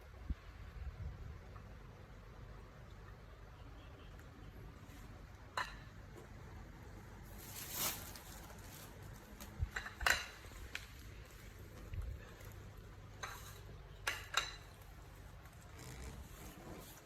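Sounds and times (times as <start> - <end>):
rustling scrape: 7.2 - 9.7.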